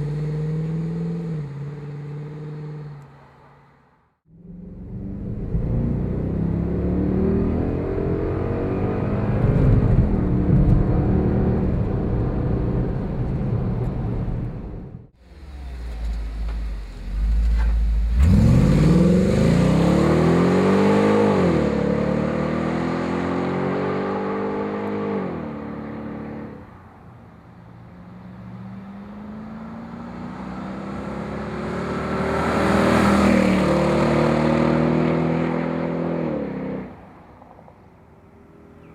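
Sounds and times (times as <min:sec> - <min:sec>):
car engine revving: 0:04.3 - 0:26.6, 0:28.4 - 0:37.0.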